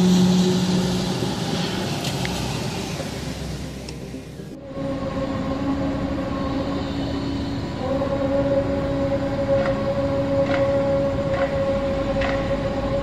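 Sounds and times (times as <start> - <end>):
trumpet-like low drone: 0.0 - 13.0
higher tone: 4.0 - 13.0.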